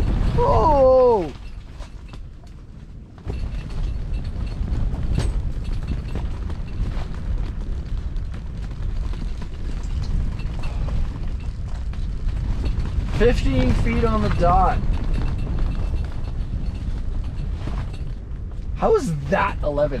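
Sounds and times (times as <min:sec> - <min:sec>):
strong gusting wind: 0:00.0 - 0:20.0.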